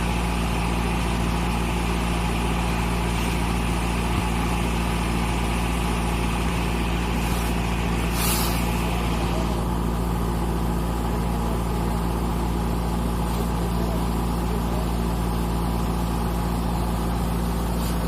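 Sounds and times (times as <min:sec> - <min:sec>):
combine harvester engine drone: 0:00.0 - 0:18.0
brief hiss: 0:07.2 - 0:08.8.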